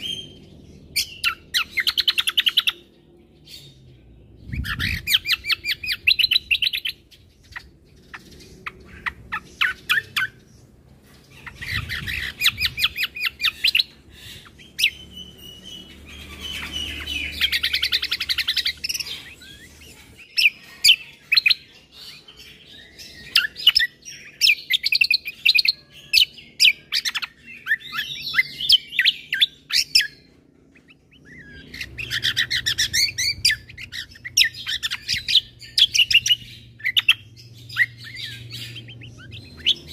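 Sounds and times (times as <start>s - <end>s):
bird singing chattering phrases: 0.0s - 39.9s.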